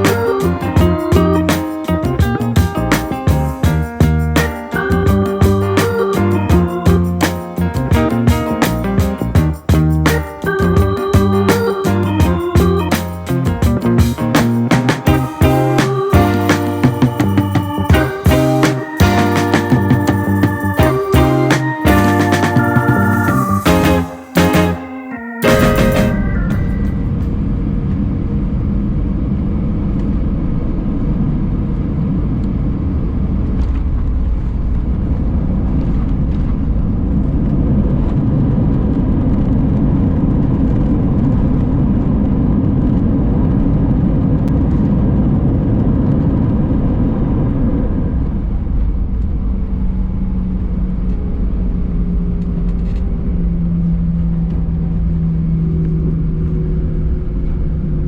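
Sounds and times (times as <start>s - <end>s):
airplane cabin rumble: 0.0s - 58.0s
engine hum with steady tone: 26.9s - 58.0s.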